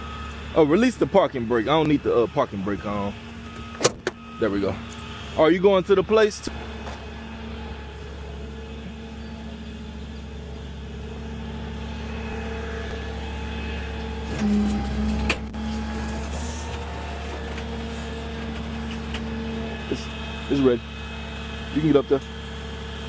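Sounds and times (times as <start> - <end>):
tow truck engine humming: 0.0 - 23.0.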